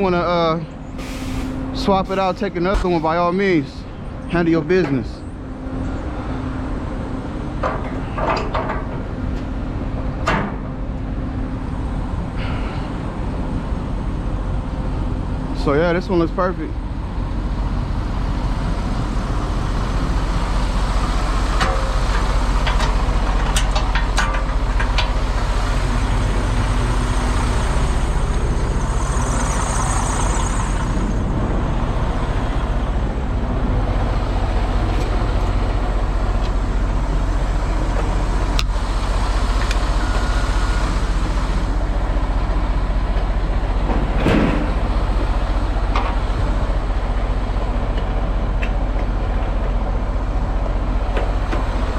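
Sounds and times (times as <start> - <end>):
truck engine running: 0.0 - 51.9
brief air hiss: 1.0 - 1.7.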